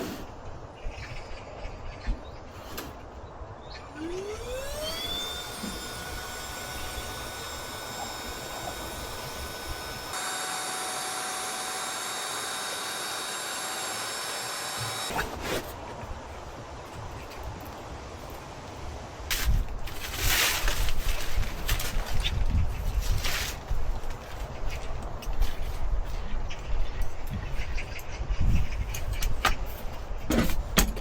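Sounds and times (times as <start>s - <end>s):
small electric motor whining: 3.9s - 15.2s.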